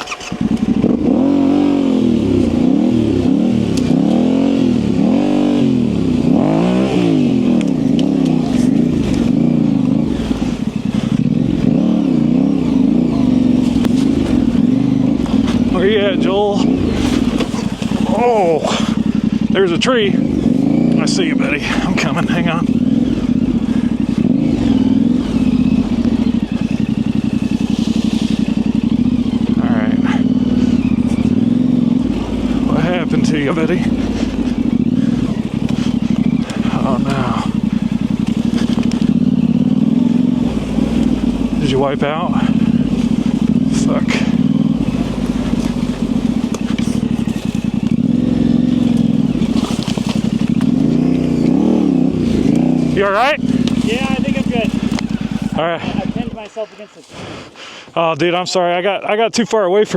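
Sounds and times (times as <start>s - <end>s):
motorcycle engine at low revs: 0.0s - 59.9s.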